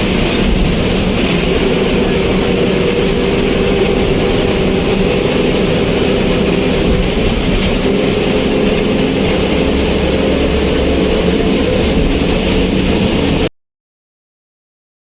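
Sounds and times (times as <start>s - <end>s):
road noise: 0.0s - 13.5s
vehicle engine hum: 0.0s - 13.5s.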